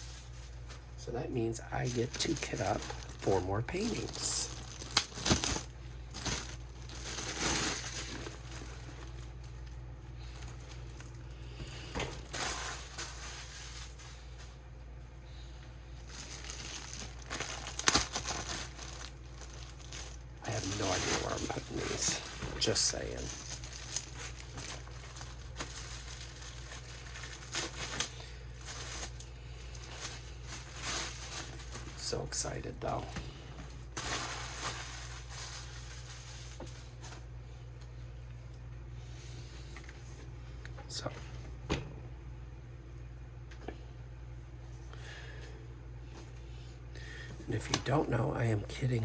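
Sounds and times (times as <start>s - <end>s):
packaging crinkling: 1.7s - 14.5s, 16.0s - 37.3s.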